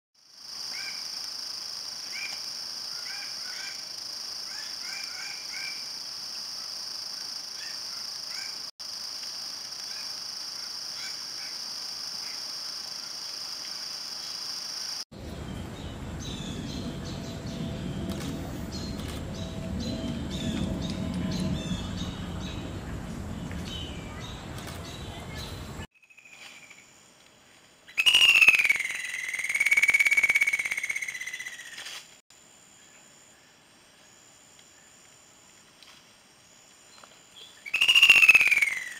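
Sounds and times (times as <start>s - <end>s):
low rumble: 15.1s - 25.9s.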